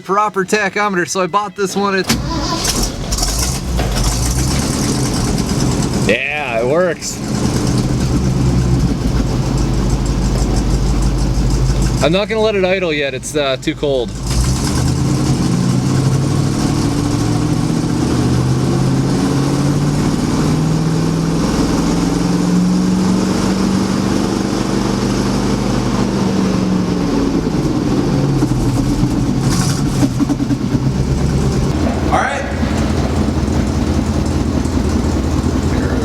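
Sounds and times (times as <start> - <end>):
dump truck engine revving: 2.0 - 36.0.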